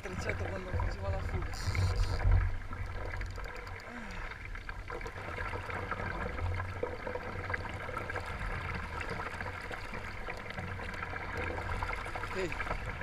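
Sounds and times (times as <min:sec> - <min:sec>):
water lapping and trickling: 0:00.0 - 0:13.0
small clicks: 0:03.0 - 0:04.2.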